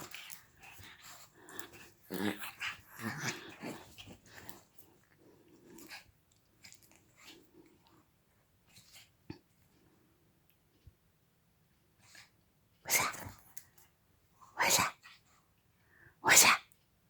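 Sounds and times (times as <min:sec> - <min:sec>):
dog growling: 0:00.0 - 0:04.6.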